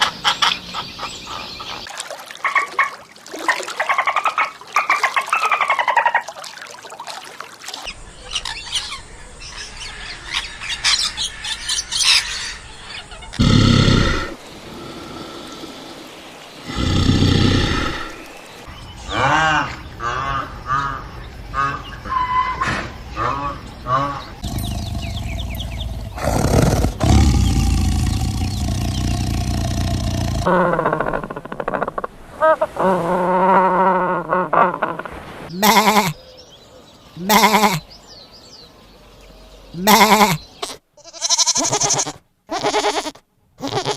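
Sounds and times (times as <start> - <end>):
birds chirping: 7.9 - 20.3, 23.2 - 32.0, 35.5 - 40.8
large animal roaring: 13.4 - 16.0, 16.6 - 18.2, 24.4 - 31.6
steady low hum: 24.4 - 30.5
steady low rumble: 24.4 - 30.5.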